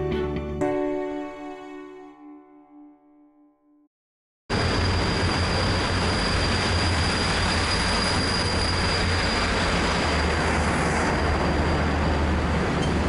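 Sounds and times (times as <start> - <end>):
high-pitched train squeal: 4.5 - 13.0
train carriages rumbling past: 4.5 - 13.0.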